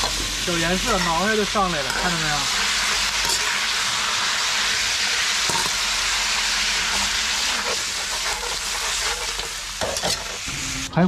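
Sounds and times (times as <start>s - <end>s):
pork sizzling in a wok: 0.0s - 10.9s.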